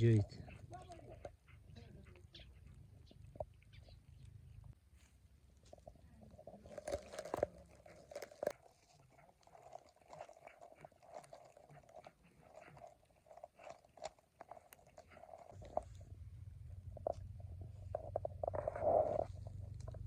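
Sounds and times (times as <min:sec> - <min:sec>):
kitten chewing meat: 0:05.3 - 0:20.0.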